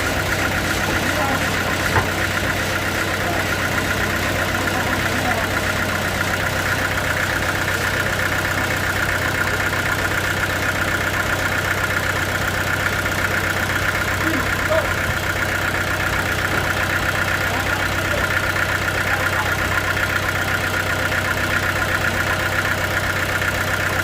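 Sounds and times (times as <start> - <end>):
sawmill machinery hum: 0.0 - 24.0.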